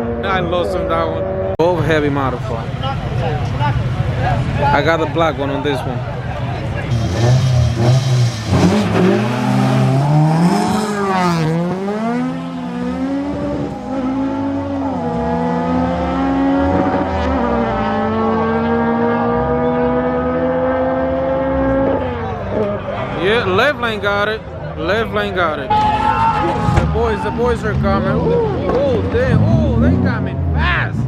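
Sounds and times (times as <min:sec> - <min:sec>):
race car engines revving: 0:00.0 - 0:31.0.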